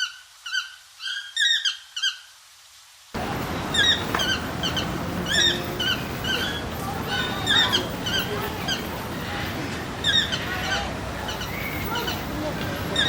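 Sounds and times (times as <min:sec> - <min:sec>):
bird chirping: 0:03.6 - 0:09.0, 0:10.0 - 0:13.0.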